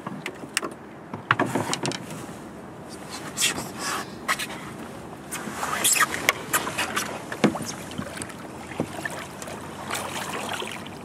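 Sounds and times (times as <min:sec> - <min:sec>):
river water flowing: 0:02.0 - 0:11.0
splashes and knocks: 0:06.0 - 0:11.0.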